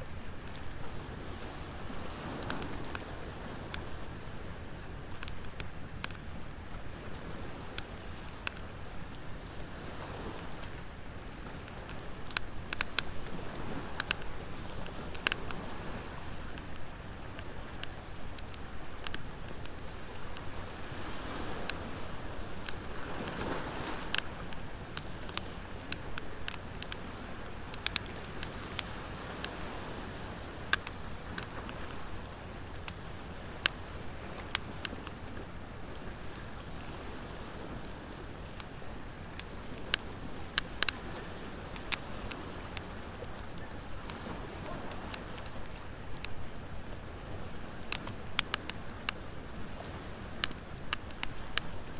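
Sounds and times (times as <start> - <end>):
ocean waves: 0.0 - 51.9
wood fire crackling: 0.0 - 51.9.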